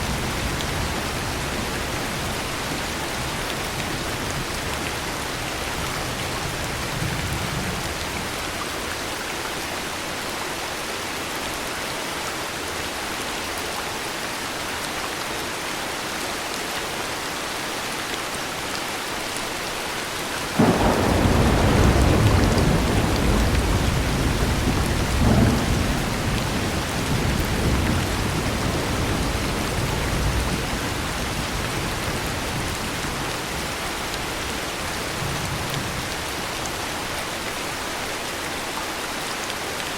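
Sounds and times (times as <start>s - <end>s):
heavy rain: 0.0s - 39.9s
thunder clap and rumble: 20.6s - 36.2s.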